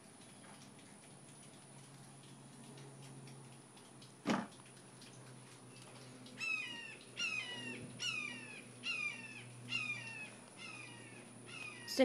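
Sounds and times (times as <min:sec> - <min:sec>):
crow cawing: 0:06.4 - 0:12.0.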